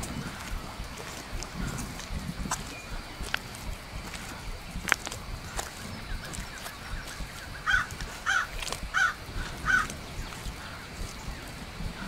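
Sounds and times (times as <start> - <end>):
steady background hiss: 0.0 - 12.0
bird harsh calls: 5.4 - 12.0.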